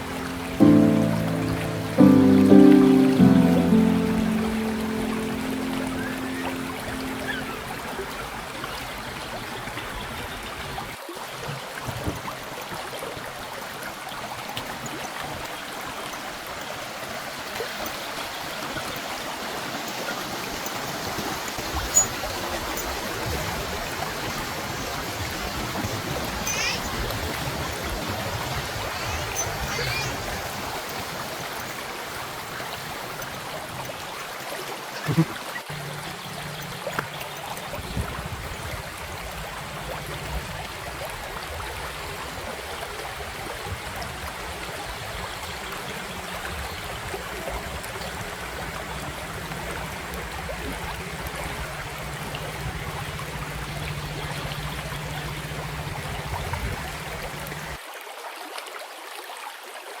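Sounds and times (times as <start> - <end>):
river water flowing: 0.0 - 57.8
steady low hum: 35.7 - 57.8.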